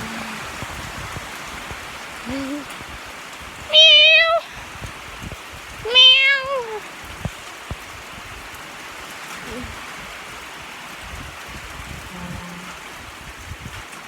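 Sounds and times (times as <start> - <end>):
rain hissing: 0.0 - 14.0
cat meowing: 3.7 - 4.5, 5.8 - 6.8.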